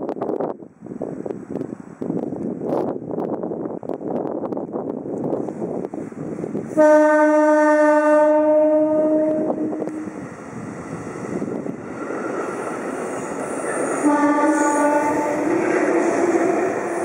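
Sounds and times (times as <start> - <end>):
train cars rushing by: 0.2 - 17.0
train horn: 6.7 - 10.1, 13.7 - 17.0.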